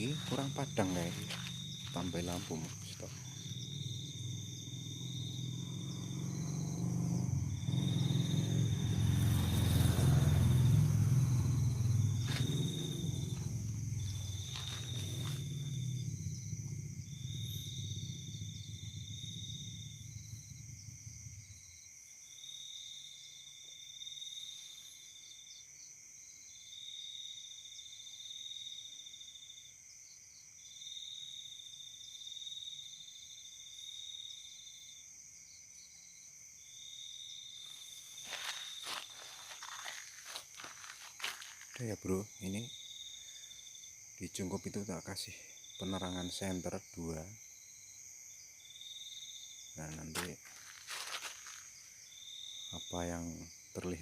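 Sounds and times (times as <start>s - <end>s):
high-pitched insect drone: 0.0s - 23.2s, 36.8s - 54.0s
night insects buzzing: 0.0s - 54.0s.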